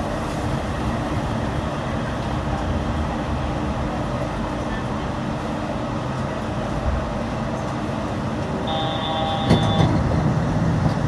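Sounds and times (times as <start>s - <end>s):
train running rumble: 0.0s - 11.0s
high steady tone: 8.7s - 9.8s.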